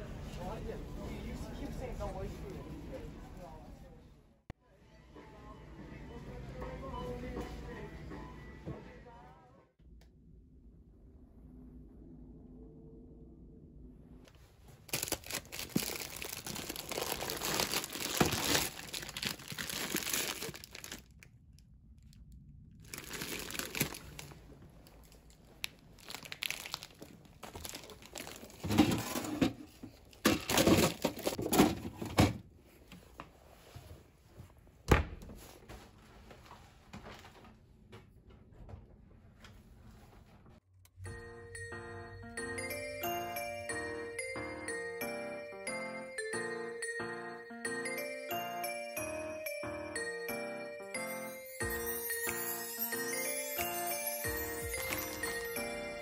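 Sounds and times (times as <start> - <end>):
bags crinkling and rustling: 14.7 - 21.3, 22.8 - 31.7, 51.7 - 56.0.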